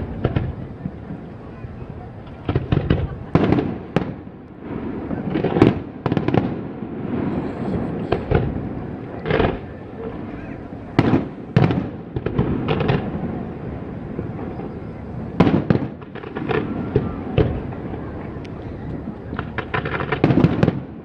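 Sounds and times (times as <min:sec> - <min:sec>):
fireworks crackle and rumble: 0:00.0 - 0:21.0
fireworks shells bursting: 0:02.5 - 0:13.2.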